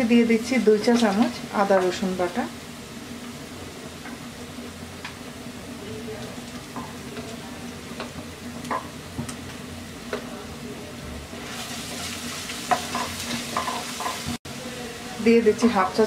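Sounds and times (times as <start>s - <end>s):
food sizzling in hot oil: 0.0s - 16.0s
spatula knocking and scraping pan: 11.6s - 14.4s.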